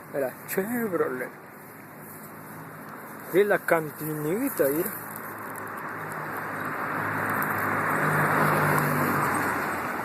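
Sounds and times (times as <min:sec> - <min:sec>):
vehicle passing by: 0:05.6 - 0:10.0.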